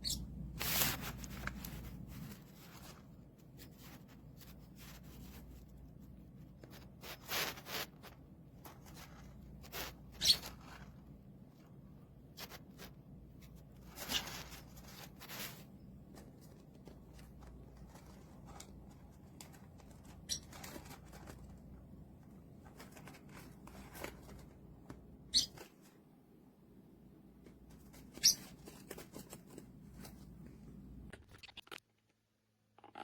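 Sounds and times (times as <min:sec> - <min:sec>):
low background hum: 0:00.0 - 0:31.3
short rustles and scrapes: 0:00.5 - 0:05.8, 0:06.4 - 0:21.7.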